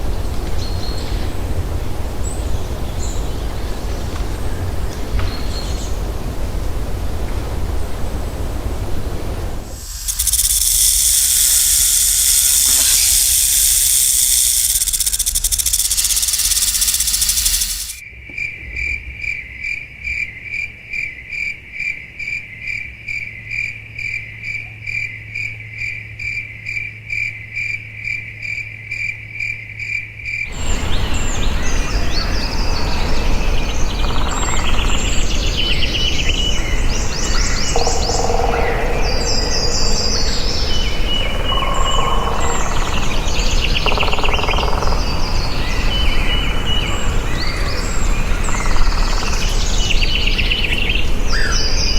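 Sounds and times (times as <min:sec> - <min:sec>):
hissing forest ambience: 0:00.0 - 0:18.0, 0:30.5 - 0:51.9
pulsing insect-like call: 0:09.6 - 0:18.0, 0:30.5 - 0:51.9
birds chirping: 0:09.7 - 0:18.0, 0:30.5 - 0:51.9.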